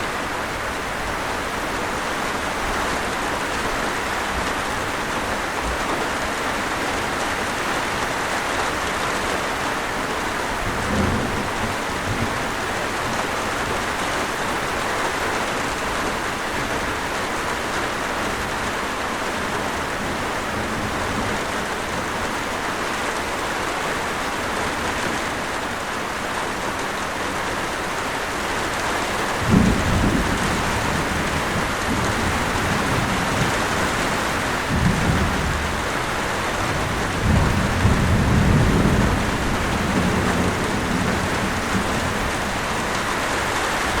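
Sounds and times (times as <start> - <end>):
steady rain: 0.0 - 44.0
thunder rumble: 10.6 - 13.8, 29.3 - 43.2.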